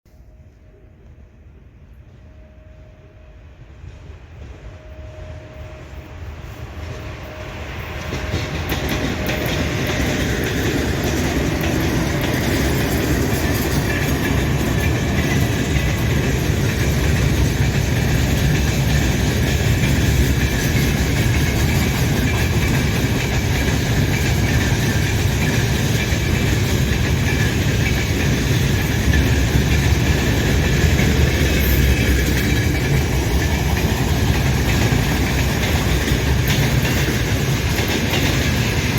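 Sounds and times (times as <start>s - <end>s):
train wheels rumbling on rails: 0.1s - 38.9s
rhythmic wheel clatter: 8.0s - 38.9s.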